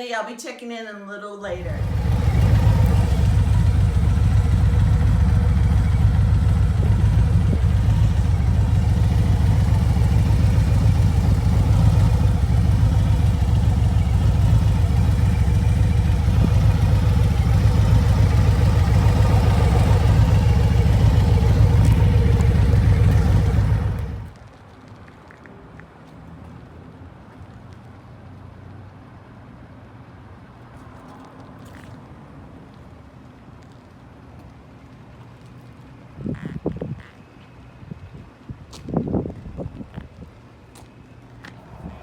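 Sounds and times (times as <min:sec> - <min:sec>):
motorcycle engine rumbling: 0:01.6 - 0:24.4.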